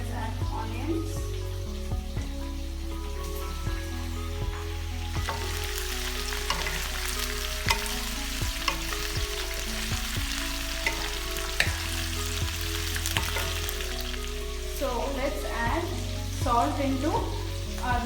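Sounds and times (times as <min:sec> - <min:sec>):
onions sizzling in hot oil: 0:00.0 - 0:18.0
spatula scraping a pan: 0:05.2 - 0:14.2.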